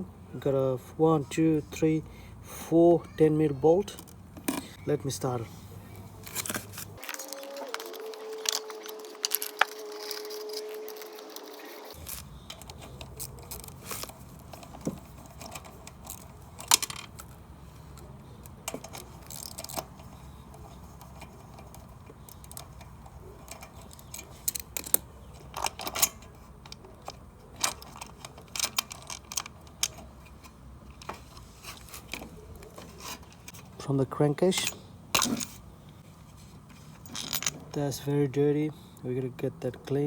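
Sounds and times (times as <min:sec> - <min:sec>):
metal tools clinking: 0:06.2 - 0:33.6, 0:34.4 - 0:35.6, 0:36.8 - 0:38.1.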